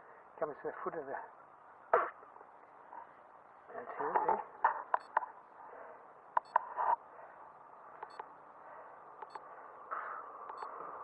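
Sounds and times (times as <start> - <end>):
sharp clicks: 6.4 - 6.7, 8.0 - 8.3, 9.2 - 9.4, 10.5 - 10.7.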